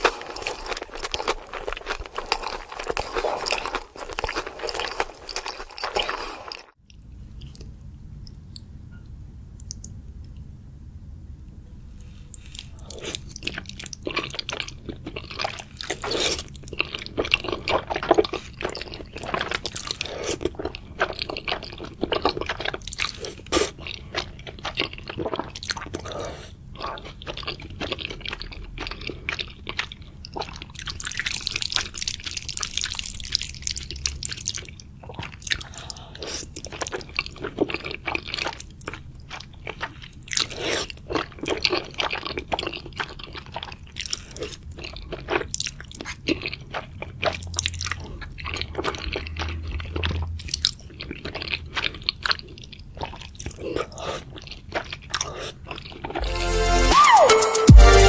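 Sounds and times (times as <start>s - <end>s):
chewing and crunching food: 0.0s - 8.7s, 12.0s - 56.4s
wet mouth sounds: 9.6s - 10.0s, 12.1s - 56.4s.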